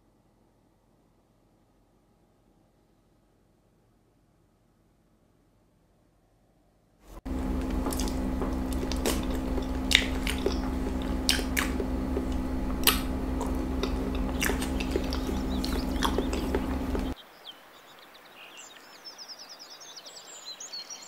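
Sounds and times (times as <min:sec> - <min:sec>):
steady low hum: 0:07.1 - 0:17.2
chewing soft food: 0:07.2 - 0:17.2
wet mouth clicks and smacks: 0:07.8 - 0:17.1.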